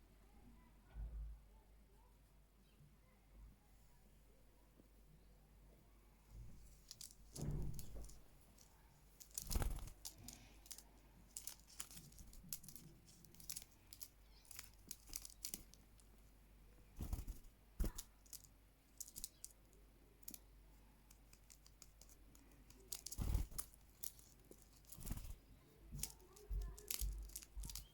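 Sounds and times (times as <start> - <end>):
scratchy tearing and crinkling: 6.9 - 15.8, 21.4 - 27.9.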